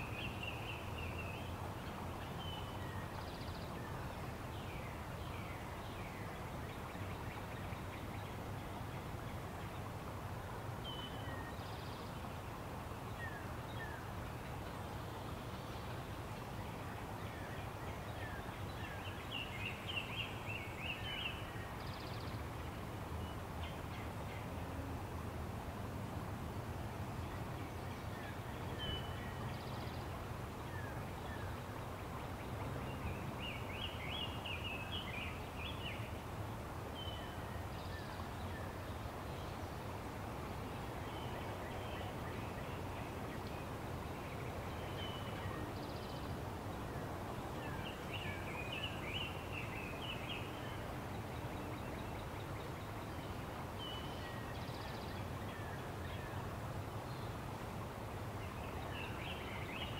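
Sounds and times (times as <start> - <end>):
outdoor background hiss: 0.0 - 59.9.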